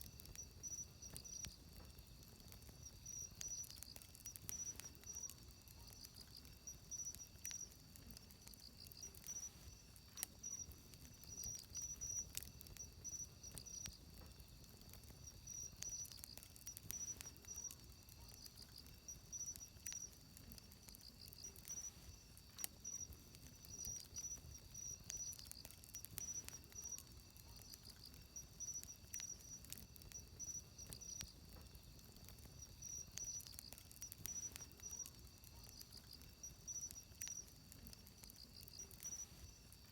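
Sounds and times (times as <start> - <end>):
insects chirping trill: 0.0 - 39.9
wood fire crackling: 0.0 - 39.9.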